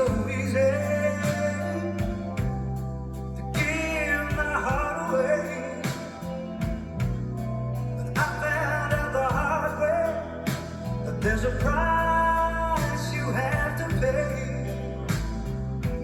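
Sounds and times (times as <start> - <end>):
rock song with singer: 0.0 - 16.0.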